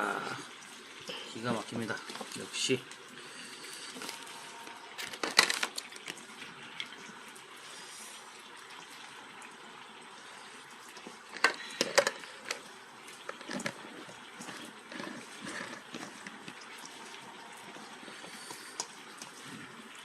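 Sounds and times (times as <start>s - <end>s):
hot oil sizzling: 9.2s - 20.0s.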